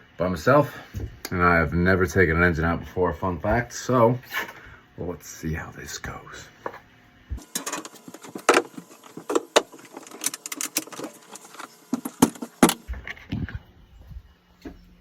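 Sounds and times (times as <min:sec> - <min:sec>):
hard objects clattering: 0:07.4 - 0:13.0.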